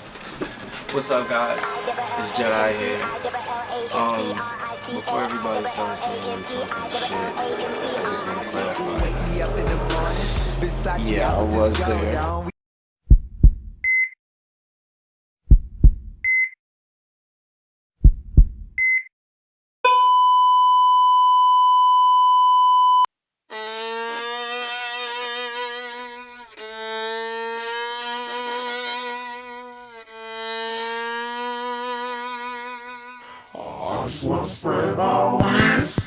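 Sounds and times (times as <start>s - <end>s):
sustained string music: 0.8s - 12.4s, 23.5s - 33.4s
heartbeat-like low thumps: 9.0s - 12.4s, 13.1s - 13.8s, 15.5s - 16.2s, 18.0s - 18.8s
steady high beep: 19.9s - 23.1s.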